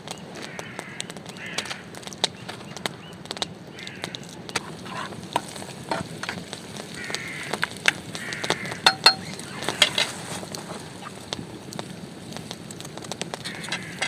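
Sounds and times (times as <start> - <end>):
campfire crackling: 0.0 - 14.0
fire hissing: 0.0 - 14.0.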